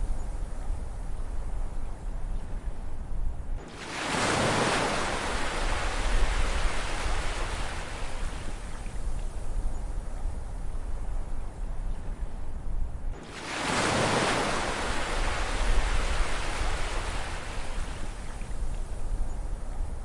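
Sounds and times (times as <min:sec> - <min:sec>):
wave breaking on shore: 0:03.6 - 0:08.6, 0:13.2 - 0:18.4.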